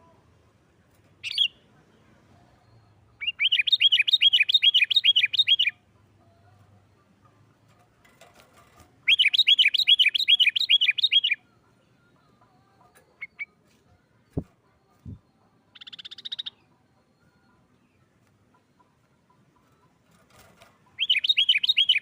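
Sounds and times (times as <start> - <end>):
bird chirps: 1.2 - 1.6, 2.5 - 6.5, 9.0 - 20.0, 20.8 - 22.0
bird calling rapid notes: 9.1 - 11.4, 21.0 - 22.0.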